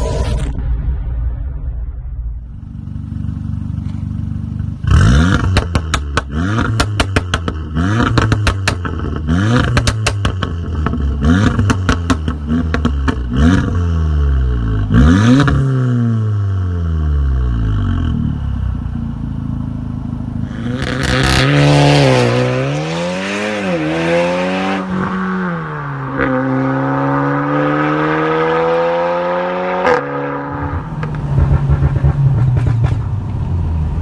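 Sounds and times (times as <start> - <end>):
car engine idling: 2.4 - 9.3, 17.1 - 20.5
engine revving: 2.6 - 18.4, 20.4 - 34.0
exhaust crackles and pops: 5.3 - 13.8, 30.6 - 34.0.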